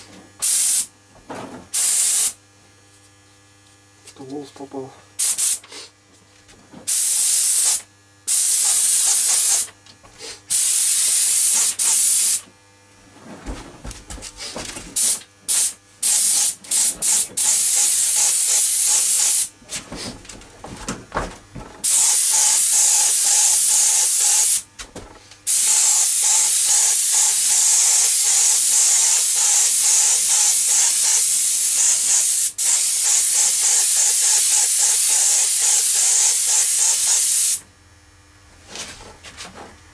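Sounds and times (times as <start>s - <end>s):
paint spray gun hissing: 0.4s - 0.9s, 1.7s - 2.4s, 5.2s - 5.9s, 6.9s - 9.7s, 10.5s - 12.5s, 15.0s - 19.5s, 21.8s - 24.7s, 25.5s - 37.6s.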